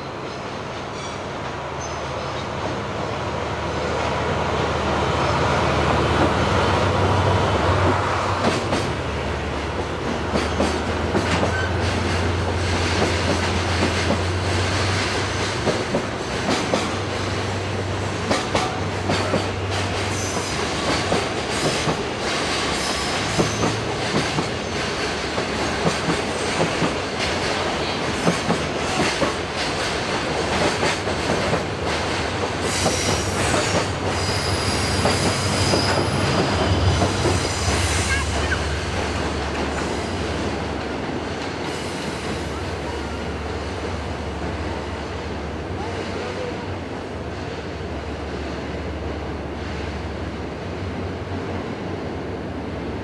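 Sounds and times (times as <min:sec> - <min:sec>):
train wheels clacking over rail joints: 0:07.8 - 0:17.4, 0:18.1 - 0:42.5.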